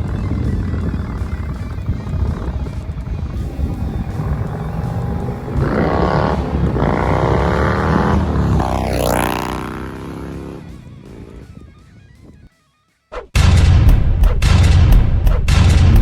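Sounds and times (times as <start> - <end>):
motorcycle exhaust accelerating hard: 0.0 - 11.7.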